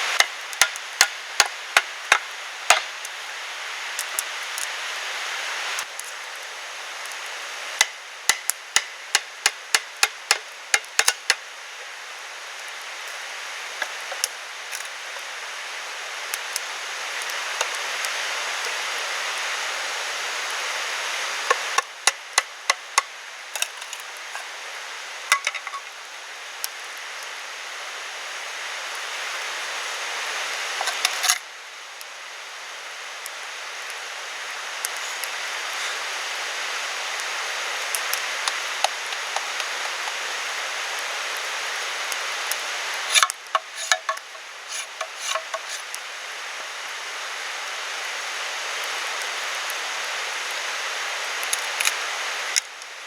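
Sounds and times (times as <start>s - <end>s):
steady background hiss: 0.0s - 53.0s
tool chopping wood: 0.2s - 2.9s, 7.8s - 11.3s.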